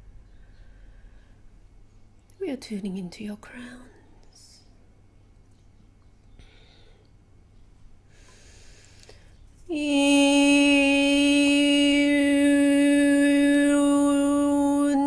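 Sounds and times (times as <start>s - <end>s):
soft intake of breath: 8.1s - 9.4s
person singing sustained tone: 9.7s - 15.0s.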